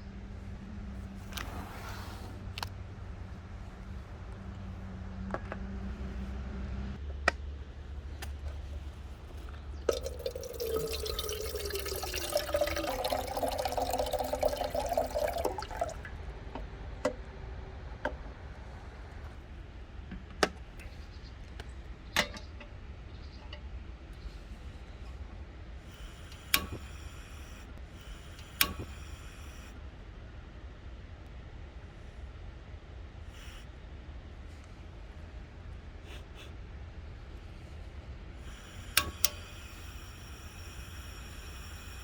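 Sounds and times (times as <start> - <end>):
water pouring into container: 9.9 - 16.2.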